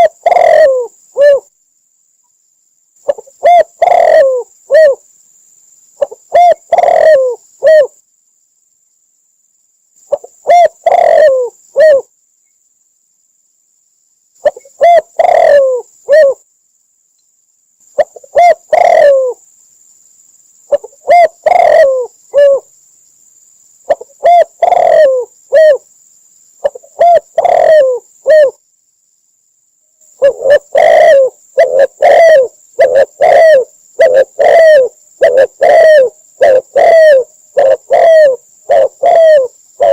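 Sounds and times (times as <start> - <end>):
dove cooing: 0.0 - 1.5, 3.0 - 5.0, 6.0 - 8.0, 10.1 - 12.1, 14.4 - 16.4, 18.0 - 19.4, 20.7 - 22.7, 23.9 - 25.8, 26.6 - 28.6, 30.2 - 39.9.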